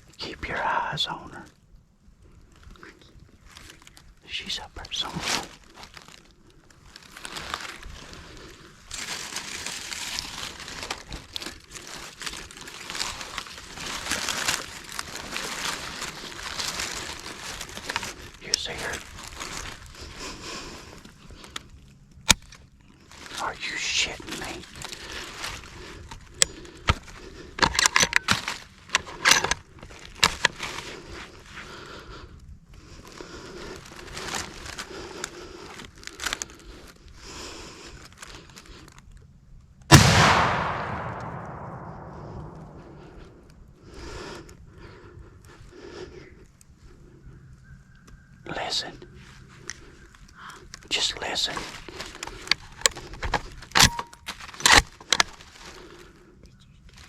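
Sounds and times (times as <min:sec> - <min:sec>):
close rustling and crinkling: 0:00.0 - 0:40.0, 0:40.8 - 0:57.0
rifle bolt clicking and clacking: 0:53.7 - 0:54.8.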